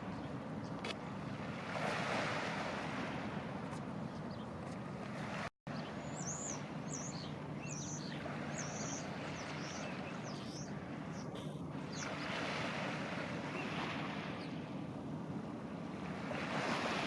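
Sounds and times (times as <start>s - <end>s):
waves washing on shore: 0.9s - 4.0s, 4.7s - 17.0s
small birds chirping: 5.8s - 12.3s.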